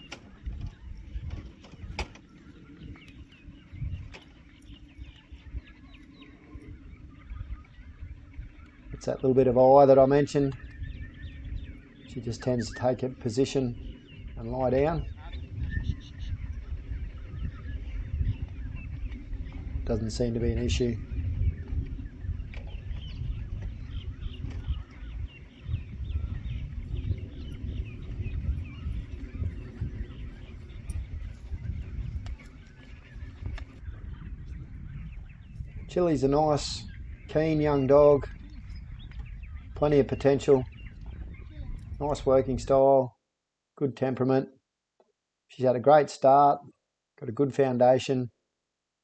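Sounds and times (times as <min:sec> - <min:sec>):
birds chirping: 0:00.0 - 0:48.4
low rumble: 0:10.6 - 0:42.7.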